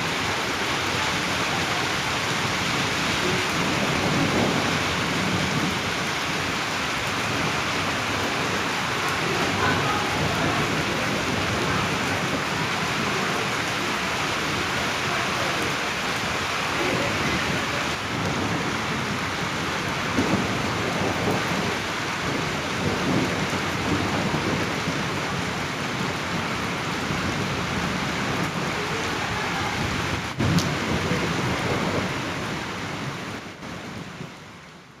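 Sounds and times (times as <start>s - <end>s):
thunder rumbling: 0.0s - 34.4s
heavy rain pouring: 0.0s - 35.0s
sharp crack of thunder: 16.9s - 25.5s, 29.8s - 32.8s.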